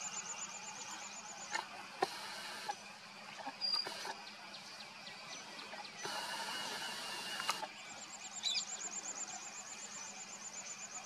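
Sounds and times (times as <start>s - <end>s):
small birds chirping: 0.0s - 11.0s
bird trilling: 1.4s - 4.4s, 5.3s - 7.8s
hiss: 2.0s - 2.8s, 6.0s - 7.7s.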